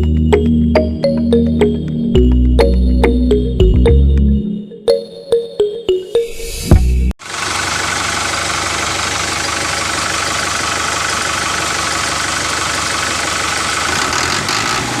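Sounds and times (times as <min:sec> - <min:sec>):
engine idling: 0:07.2 - 0:14.8.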